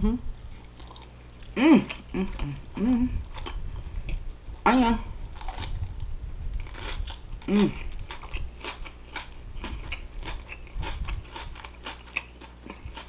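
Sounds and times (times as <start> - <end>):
person humming: 0.0 - 0.3, 1.6 - 3.3, 4.7 - 5.1, 7.5 - 7.8
chewing and biting: 0.4 - 2.5, 5.3 - 13.0.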